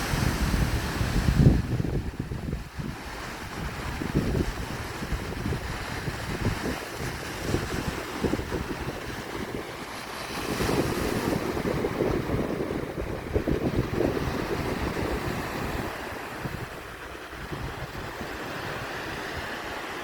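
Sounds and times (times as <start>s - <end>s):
sea surf washing ashore: 0.0s - 20.0s
wind buffeting microphone: 0.0s - 20.0s.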